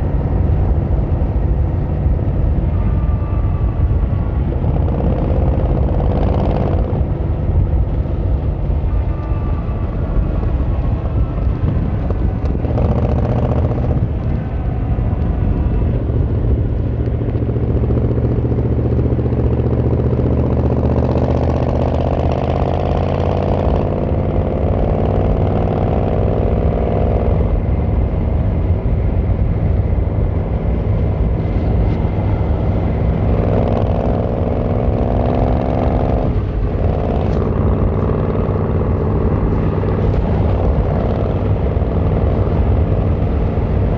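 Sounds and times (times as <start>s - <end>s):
motorcycle engine accelerating: 0.0s - 43.9s.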